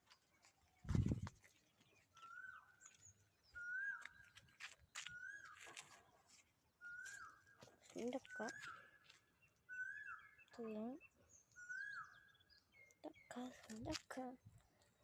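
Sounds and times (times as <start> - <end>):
high bird chirps: 2.0 - 6.1, 6.8 - 13.8
bird calling: 2.1 - 6.1, 6.8 - 13.4.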